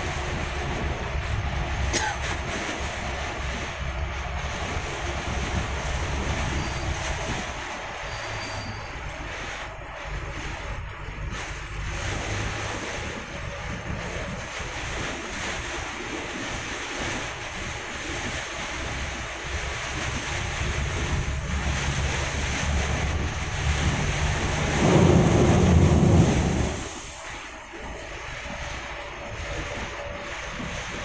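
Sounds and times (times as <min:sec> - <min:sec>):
bus engine low hum: 0:00.0 - 0:31.0
rain and road spray rushing: 0:00.0 - 0:31.0.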